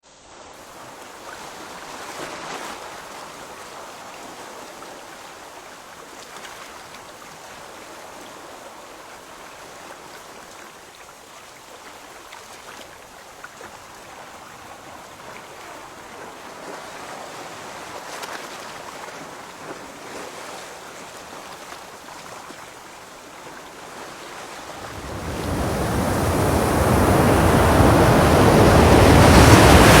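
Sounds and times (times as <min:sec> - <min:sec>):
sea water splashing: 0:13.6 - 0:30.0.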